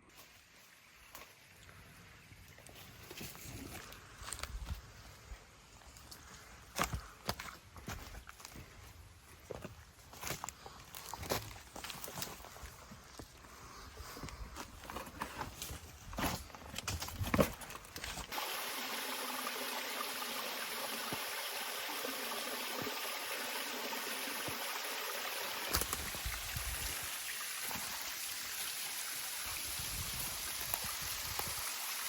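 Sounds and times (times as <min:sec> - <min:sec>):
footsteps crunching through undergrowth: 0:02.7 - 0:18.3
creek rushing: 0:18.3 - 0:32.0.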